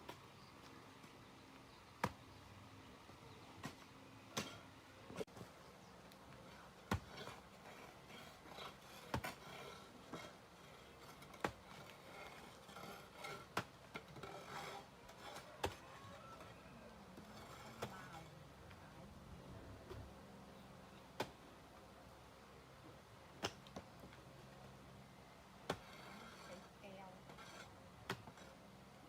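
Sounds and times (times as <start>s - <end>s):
faint rubbing or scraping: 6.4s - 18.9s, 25.6s - 28.8s.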